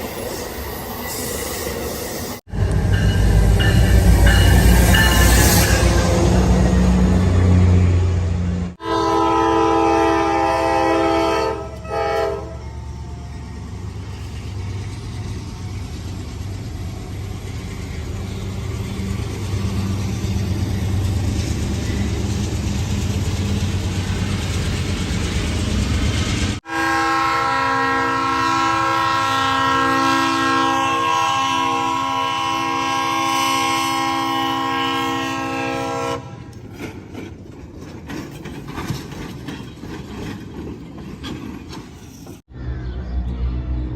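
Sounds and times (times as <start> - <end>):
passing train rumble: 0.0 - 43.9
multi-note train horn: 8.8 - 12.9, 26.6 - 36.6.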